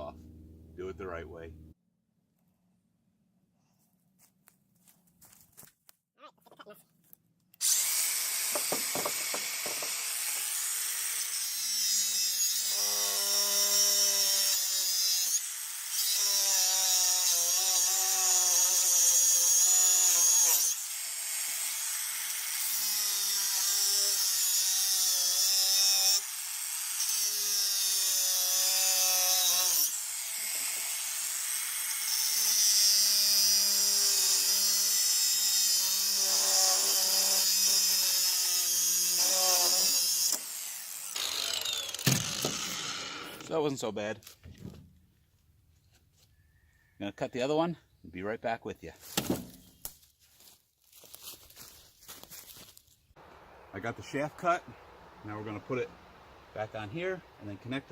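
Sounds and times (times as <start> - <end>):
power tool cutting steel: 7.6 - 43.7.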